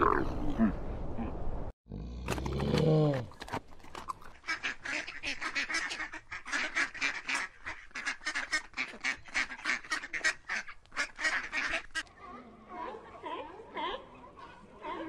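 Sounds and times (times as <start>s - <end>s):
ducks quacking rapidly: 4.4s - 12.1s.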